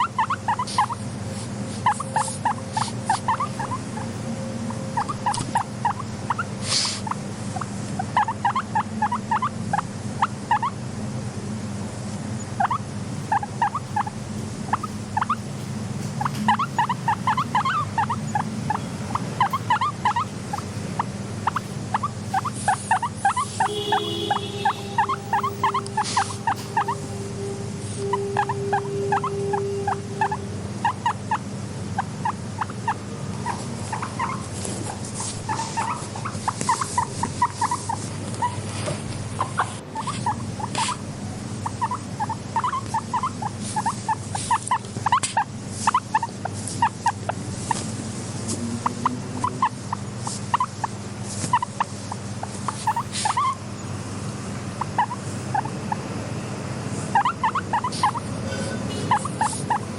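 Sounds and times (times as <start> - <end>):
guinea pigs squeaking: 0.0 - 10.9, 12.3 - 53.9, 54.7 - 56.1, 56.9 - 59.9
steady low hum: 0.0 - 59.9
held tone: 23.7 - 30.8.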